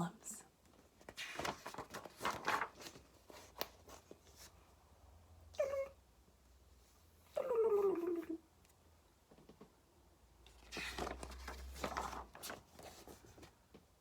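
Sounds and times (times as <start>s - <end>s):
rustling: 10.5s - 13.5s.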